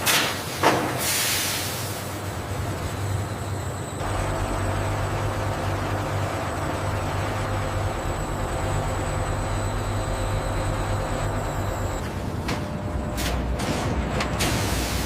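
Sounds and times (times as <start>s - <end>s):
factory machinery humming: 0.0s - 15.0s
deeper loud hum: 4.0s - 14.4s.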